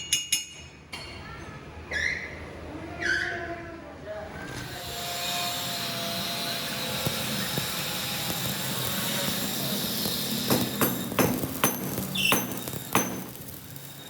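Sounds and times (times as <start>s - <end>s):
machine hissing with high whine: 4.7s - 11.2s, 12.1s - 14.0s
sharp knocks: 10.5s - 13.4s.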